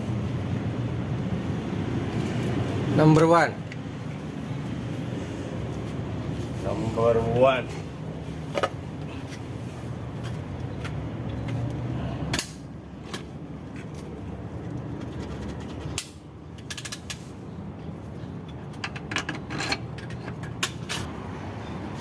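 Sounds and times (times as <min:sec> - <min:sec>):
tools clicking and knocking: 0:18.4 - 0:21.1.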